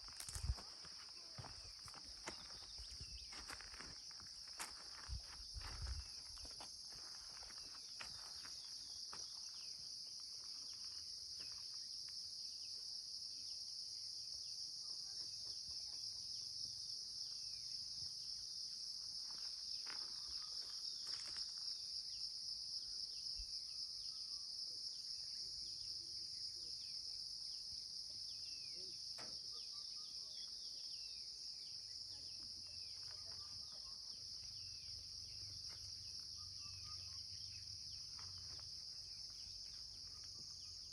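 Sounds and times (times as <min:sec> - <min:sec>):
faint bird chirps: 0:00.0 - 0:04.3, 0:22.8 - 0:40.9
high-pitched insect chorus: 0:00.0 - 0:40.9.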